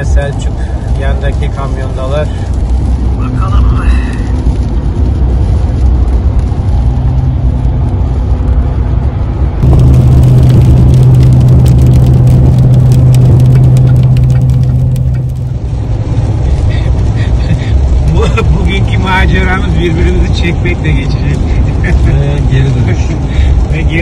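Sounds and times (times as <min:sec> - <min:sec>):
road and engine noise in cabin: 0:00.0 - 0:24.0
rapid patter of fine ticks: 0:09.7 - 0:15.7.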